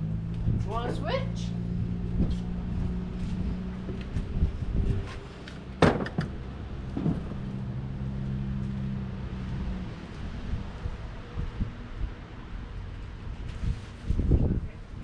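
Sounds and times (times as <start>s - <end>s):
boxes knocking and clattering: 5.8s - 7.4s.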